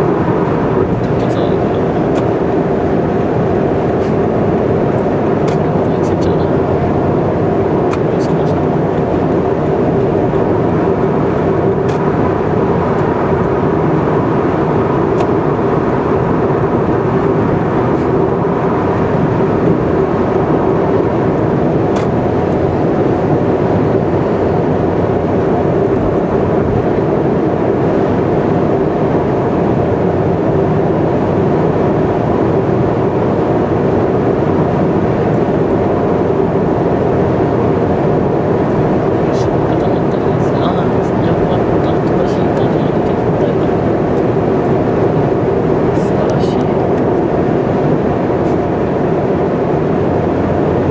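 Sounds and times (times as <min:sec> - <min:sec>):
car tyre and engine drone: 0:00.0 - 0:50.9.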